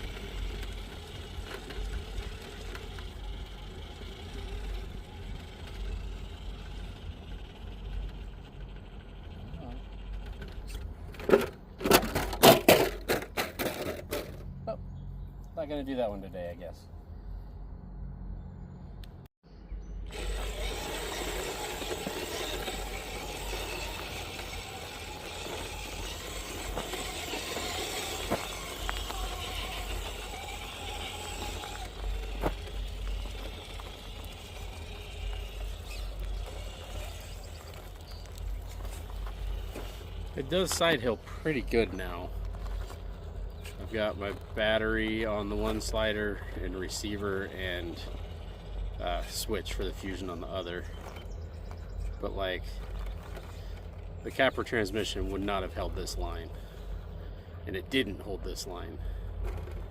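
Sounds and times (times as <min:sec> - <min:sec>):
electric motor whirring: 0:00.0 - 0:10.8, 0:20.0 - 0:50.4.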